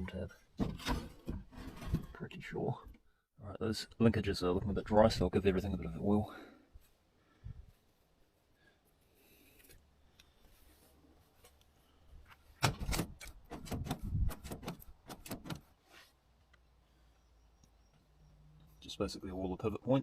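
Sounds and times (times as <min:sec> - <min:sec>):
metallic clicks and knocks: 0:12.6 - 0:15.6.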